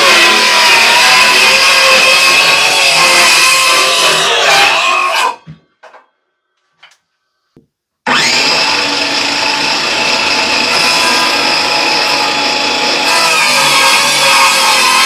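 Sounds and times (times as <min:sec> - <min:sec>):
power saw cutting wood: 0:00.0 - 0:04.5, 0:08.1 - 0:15.0.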